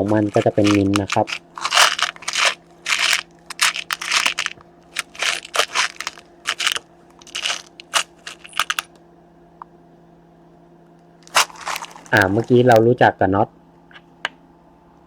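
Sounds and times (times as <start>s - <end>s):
small packets crinkling: 0.0s - 8.9s, 11.2s - 12.8s.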